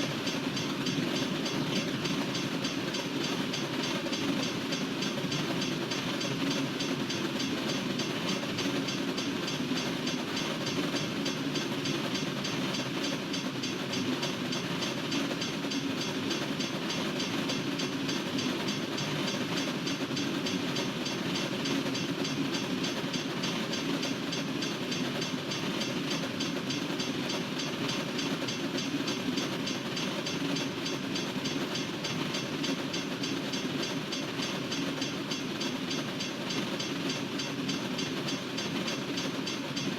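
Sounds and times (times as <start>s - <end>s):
train wheels rolling on rails: 0.0s - 39.9s.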